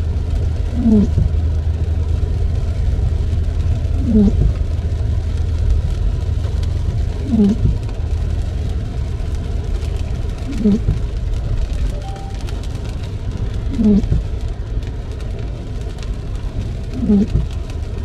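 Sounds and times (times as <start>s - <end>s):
car driving on wet road: 0.0s - 18.0s
windshield wipers groaning on glass: 4.0s - 4.5s.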